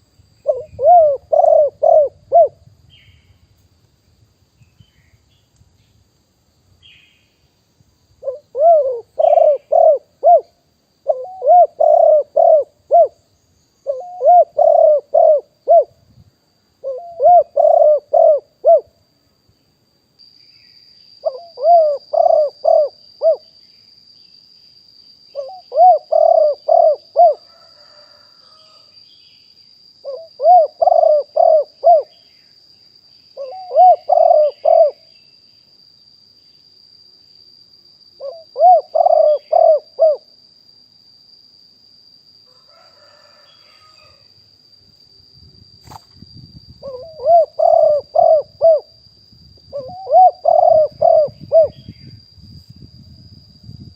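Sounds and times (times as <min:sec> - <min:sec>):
faint high-pitched whine: 0:00.0 - 0:53.9
dove cooing: 0:00.4 - 0:02.6, 0:08.2 - 0:13.2, 0:13.9 - 0:16.0, 0:16.8 - 0:18.9, 0:21.2 - 0:23.5, 0:25.4 - 0:28.9, 0:30.0 - 0:32.2, 0:33.4 - 0:35.1, 0:38.2 - 0:40.3, 0:46.8 - 0:49.0, 0:49.7 - 0:52.0.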